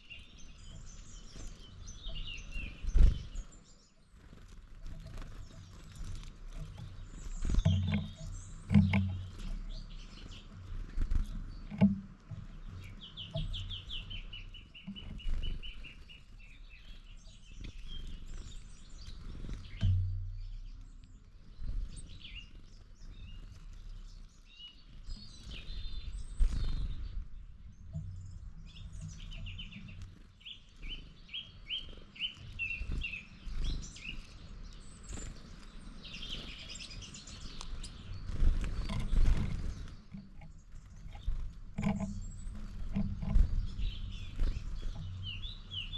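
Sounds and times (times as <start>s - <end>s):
songbirds singing: 0.0s - 45.9s
low thuds and rumbles: 19.6s - 22.2s, 38.8s - 45.9s.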